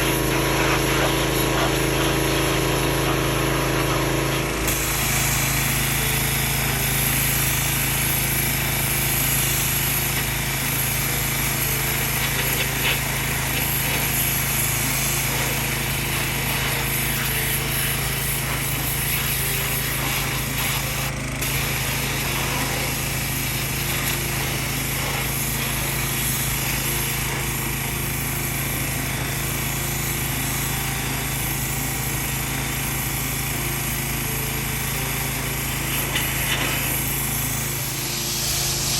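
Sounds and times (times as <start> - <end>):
hiss of water spray: 0.0 - 33.0, 35.4 - 38.9
pressure washer hum: 0.0 - 38.9.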